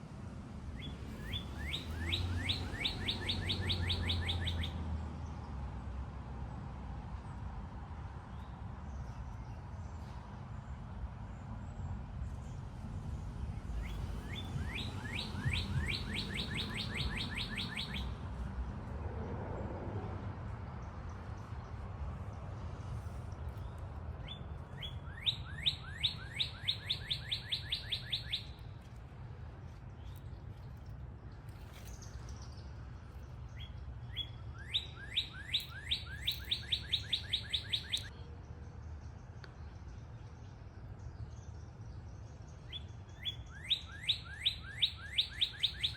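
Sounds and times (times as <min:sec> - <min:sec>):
songbird whistling song: 0:00.8 - 0:04.8, 0:13.8 - 0:18.2, 0:23.6 - 0:28.8, 0:33.4 - 0:38.2, 0:41.1 - 0:45.9.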